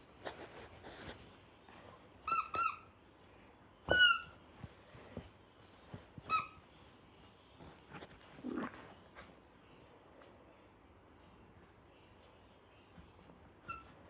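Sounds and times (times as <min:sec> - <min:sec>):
rubber squeaky toy squeaks: 0:02.3 - 0:02.9, 0:03.9 - 0:04.4, 0:06.3 - 0:06.6, 0:13.6 - 0:14.0.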